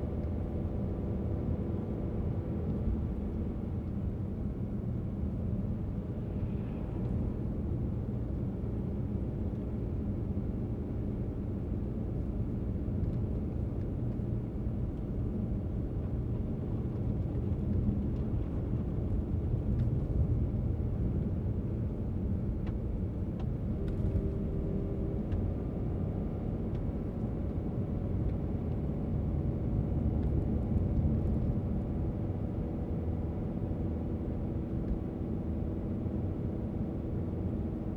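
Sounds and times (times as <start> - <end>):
car engine and tyres rumbling: 0.0 - 37.9.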